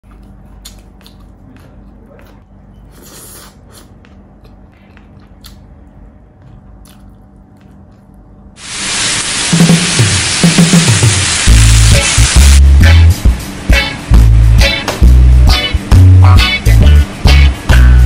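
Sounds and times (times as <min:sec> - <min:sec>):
crunchy chewing: 0:00.0 - 0:08.5.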